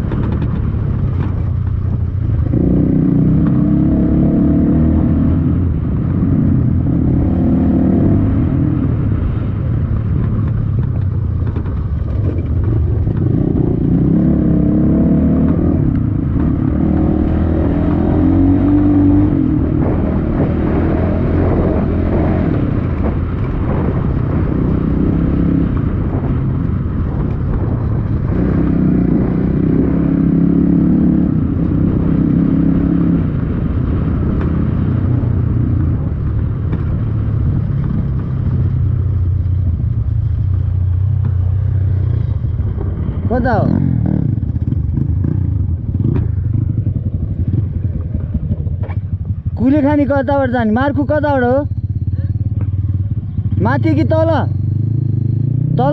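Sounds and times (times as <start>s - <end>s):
wind and road noise: 0.0s - 55.9s.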